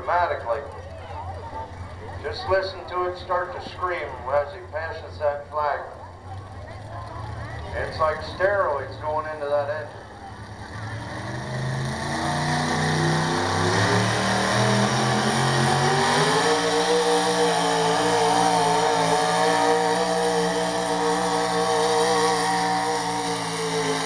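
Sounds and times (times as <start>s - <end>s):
announcer speaking: 0.0s - 0.7s, 2.2s - 6.0s, 7.7s - 10.0s
truck engine revving under load: 9.9s - 24.0s.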